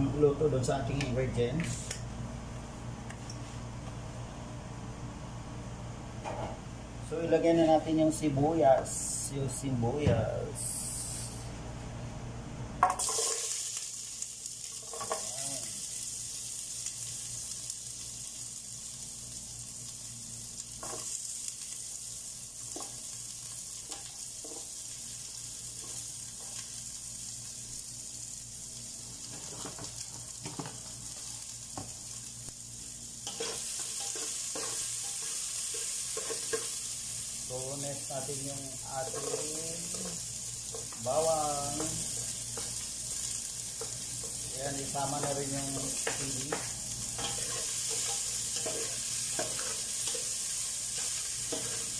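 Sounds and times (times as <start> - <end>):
onions frying in hot oil: 12.8 - 51.9
spatula tapping and scraping: 33.3 - 36.7, 45.1 - 50.3, 51.0 - 51.9.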